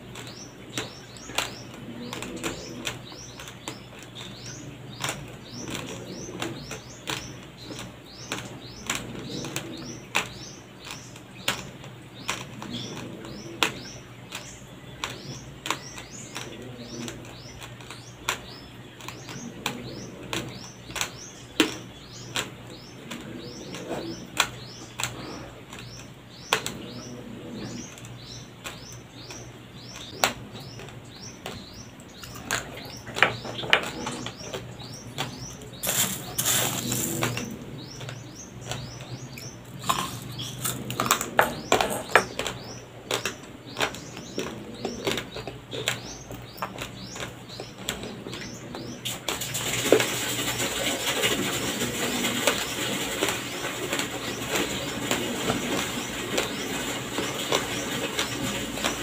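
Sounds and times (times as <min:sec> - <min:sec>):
steady low hum: 0:00.0 - 0:59.0
raw rice crunching between teeth: 0:33.9 - 0:38.8, 0:39.6 - 0:41.7.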